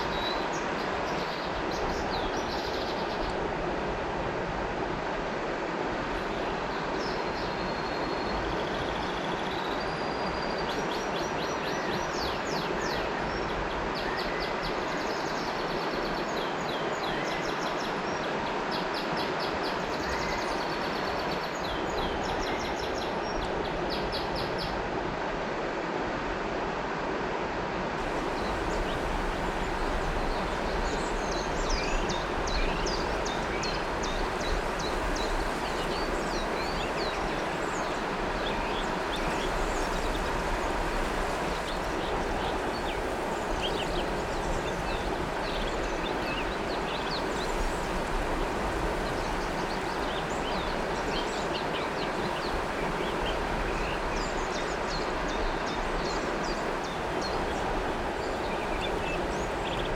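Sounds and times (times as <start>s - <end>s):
river water flowing: 0.0s - 59.9s
birds chirping: 28.0s - 47.8s.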